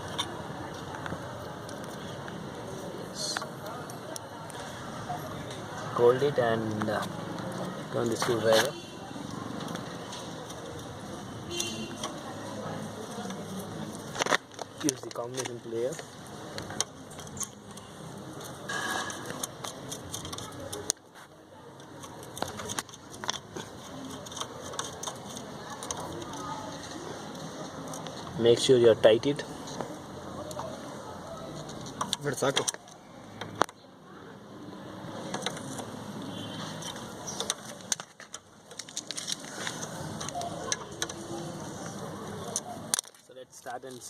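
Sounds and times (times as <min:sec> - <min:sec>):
hand tools clicking and tapping: 0:06.8 - 0:26.7, 0:29.7 - 0:33.8, 0:35.2 - 0:43.2
tools clicking and knocking on metal: 0:14.2 - 0:21.0, 0:21.8 - 0:26.4, 0:31.5 - 0:33.8, 0:35.2 - 0:36.0.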